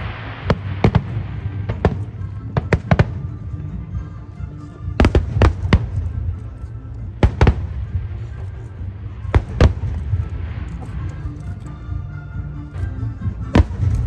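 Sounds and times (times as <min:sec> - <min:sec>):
fireworks bangs: 0:00.0 - 0:03.4, 0:05.0 - 0:06.4, 0:07.2 - 0:11.3, 0:13.5 - 0:14.0
low rumble: 0:00.0 - 0:14.0.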